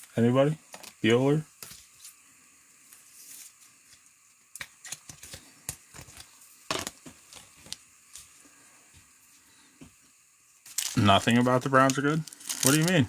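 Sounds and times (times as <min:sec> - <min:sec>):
cards and wrappers rustling: 0:04.6 - 0:08.3, 0:10.6 - 0:13.0.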